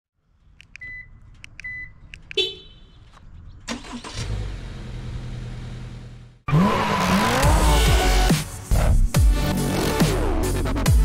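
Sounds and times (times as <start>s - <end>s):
car engine starting and idling: 3.5s - 8.2s.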